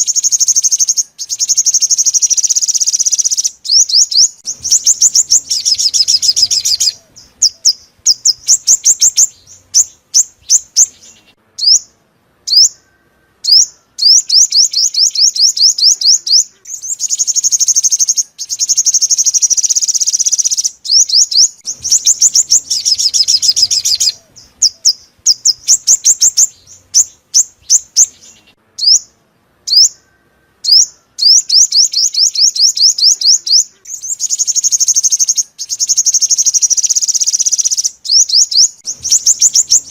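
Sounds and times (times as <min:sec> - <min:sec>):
buzzy rattling bird call: 0:00.0 - 0:11.2, 0:14.2 - 0:27.0, 0:31.4 - 0:39.9
bird chirping trills: 0:00.0 - 0:39.9.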